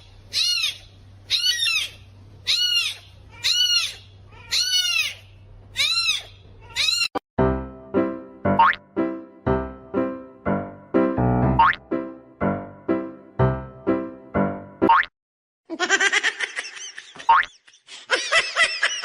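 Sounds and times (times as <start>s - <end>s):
animal high-pitched calls: 0.0s - 7.2s
plucked music: 7.4s - 15.0s
rising boing: 8.6s - 8.8s, 11.5s - 11.8s.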